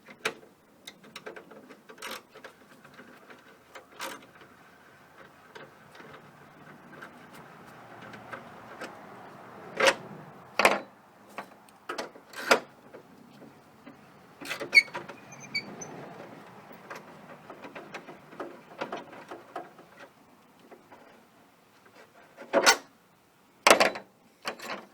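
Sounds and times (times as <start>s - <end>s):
plastic clicks and rattles: 0.0s - 4.5s.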